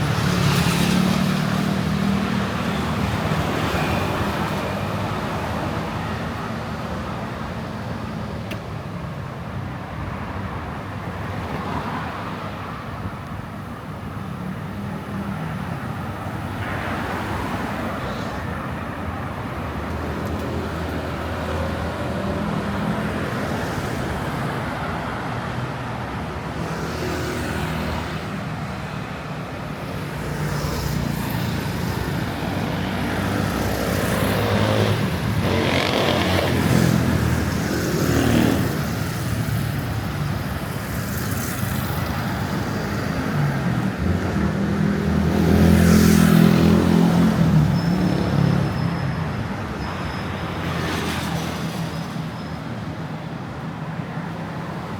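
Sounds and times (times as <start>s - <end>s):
cars and motorbikes passing: 0.0s - 54.9s.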